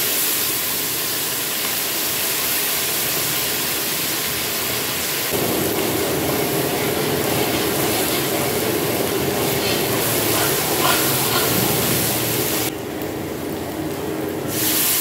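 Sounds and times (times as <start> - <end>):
lentils sizzling in hot oil: 0.0 - 15.0
steel spatula stirring: 6.8 - 12.4.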